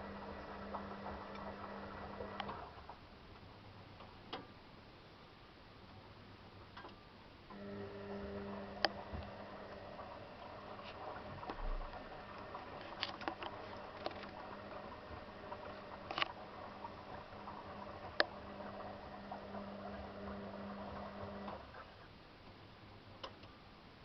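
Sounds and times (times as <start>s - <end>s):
motor hum: 0.0s - 3.0s, 7.5s - 22.0s.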